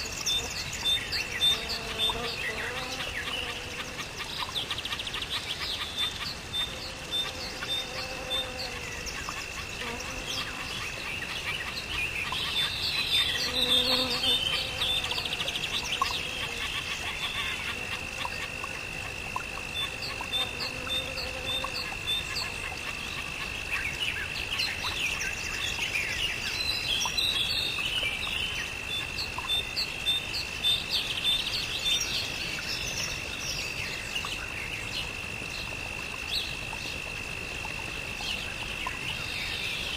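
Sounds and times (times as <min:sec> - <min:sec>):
birds chirping and calling: 0:00.0 - 0:18.6.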